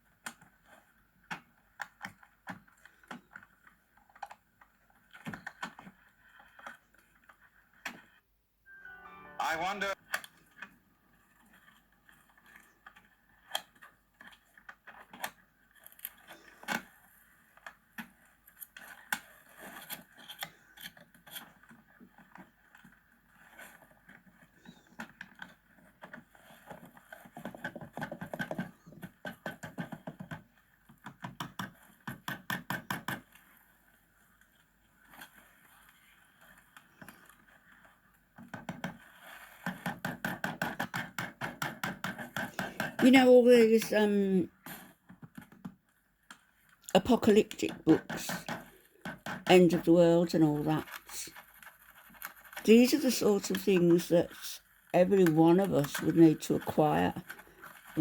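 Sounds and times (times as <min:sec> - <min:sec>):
knocks clicks and scraping: 0:46.9 - 0:58.0.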